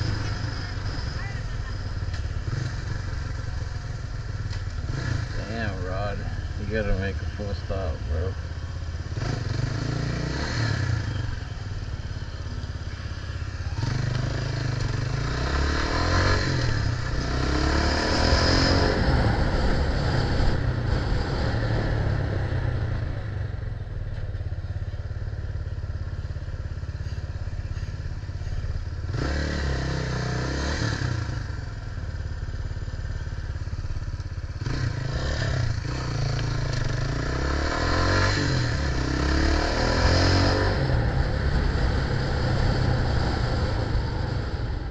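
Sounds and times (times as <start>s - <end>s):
vehicle engine noise: 0.0s - 44.9s
steady low rumble: 40.6s - 44.9s.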